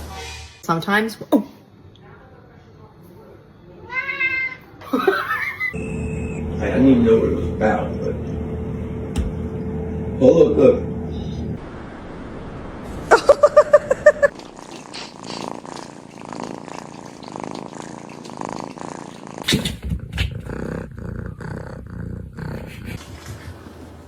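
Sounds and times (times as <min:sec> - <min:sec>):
cat purring: 0:12.9 - 0:24.0.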